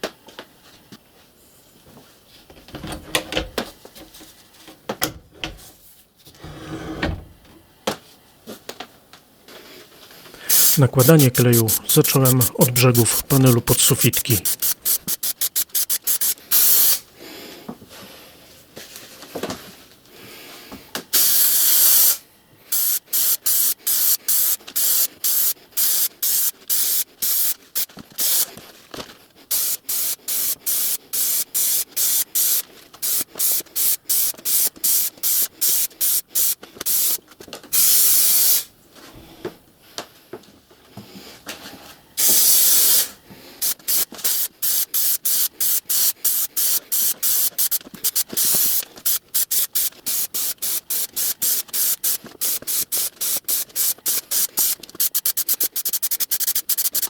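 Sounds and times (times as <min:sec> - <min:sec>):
spray adhesive hissing: 0:10.4 - 0:17.0, 0:21.2 - 0:28.5, 0:29.5 - 0:37.2, 0:37.8 - 0:38.6, 0:42.2 - 0:57.0.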